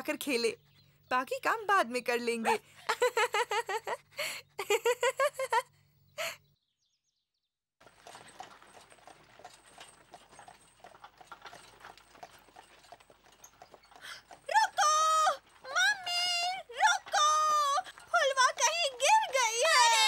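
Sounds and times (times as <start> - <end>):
horse hooves clip-clopping: 7.8 - 20.0.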